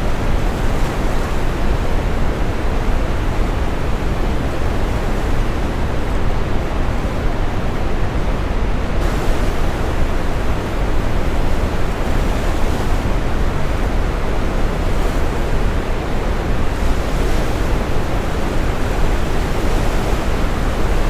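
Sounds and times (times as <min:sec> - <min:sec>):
ocean waves breaking: 0:09.0 - 0:21.0.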